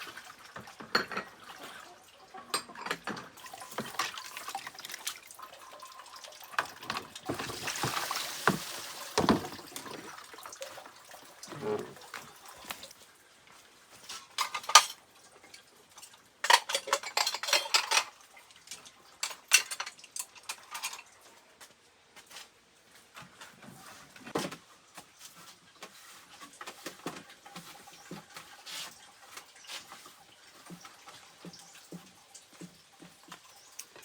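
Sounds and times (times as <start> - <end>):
dishes and cutlery clattering: 0.7 - 1.6, 2.4 - 5.0, 6.6 - 10.1, 14.0 - 15.0, 16.4 - 21.1.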